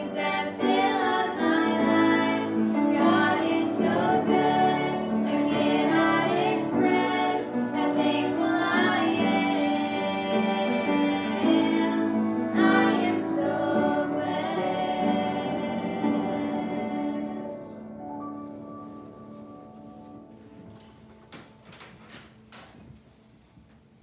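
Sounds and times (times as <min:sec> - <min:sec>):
voices singing church song: 0:00.0 - 0:18.0.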